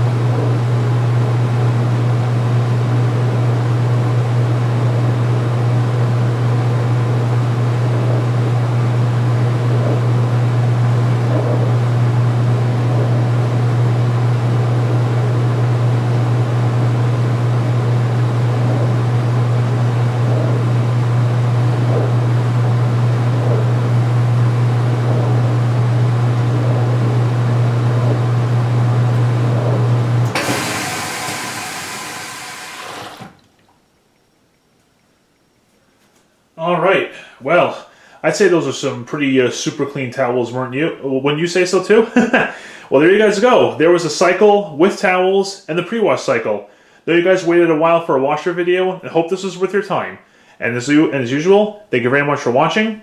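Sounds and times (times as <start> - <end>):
washing machine spinning: 0.0 - 34.1.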